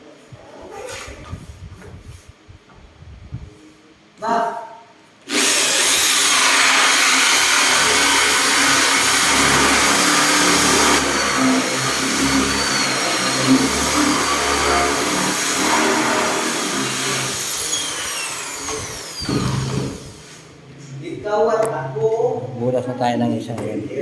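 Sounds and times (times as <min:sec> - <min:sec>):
electric drill boring into wood: 0:05.3 - 0:20.3.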